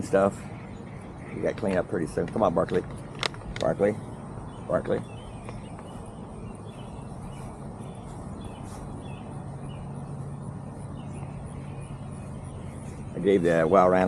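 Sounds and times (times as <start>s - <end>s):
distant lawn mower engine: 0.0s - 14.0s.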